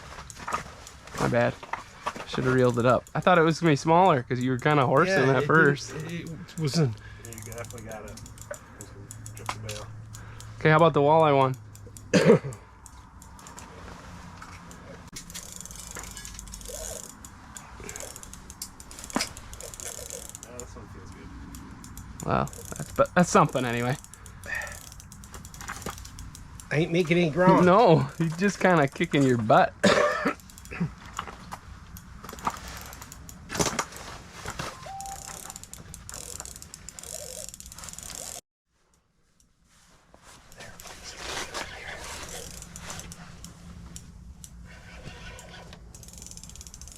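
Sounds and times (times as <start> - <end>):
fishing reel clicking: 2.4 - 5.0, 5.8 - 13.7, 14.7 - 29.3, 30.4 - 30.8, 31.9 - 33.5, 34.9 - 38.4, 42.0 - 46.9.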